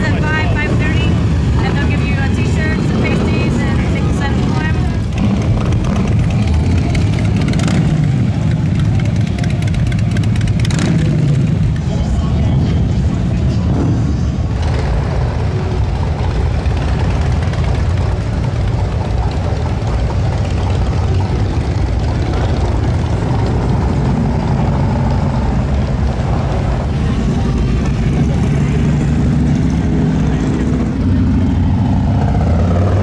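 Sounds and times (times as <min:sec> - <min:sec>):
motorcycle engines running: 0:00.0 - 0:33.0.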